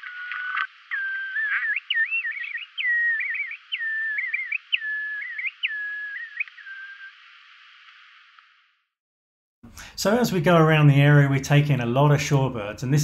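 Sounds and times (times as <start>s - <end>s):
curlew calling: 0.0s - 7.8s.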